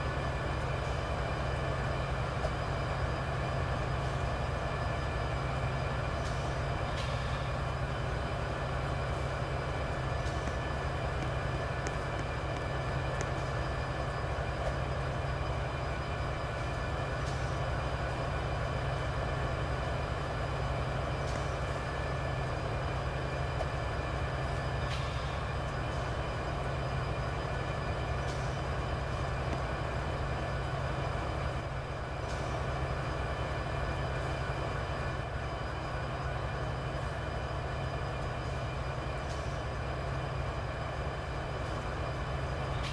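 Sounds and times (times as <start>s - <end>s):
faint train clicks: 0.0s - 42.9s
train rumble and hum: 0.0s - 42.9s.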